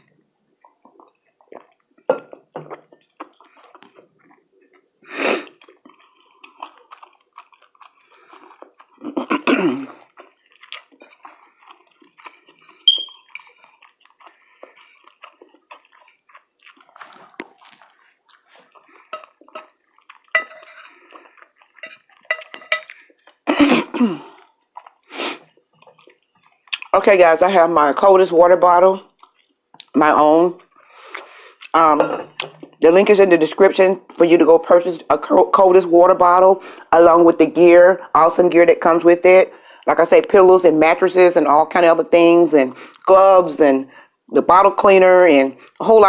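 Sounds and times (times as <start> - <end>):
person chewing food: 0.0 - 27.0, 28.9 - 32.8, 42.8 - 43.1
wet mouth clicks and smacks: 0.6 - 9.1, 10.0 - 20.3, 24.5 - 26.9, 29.2 - 30.0.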